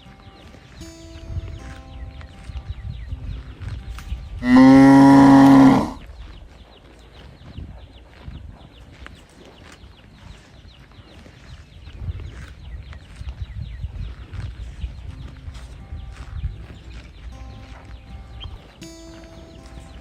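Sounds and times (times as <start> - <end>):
calf mooing: 4.4 - 6.0.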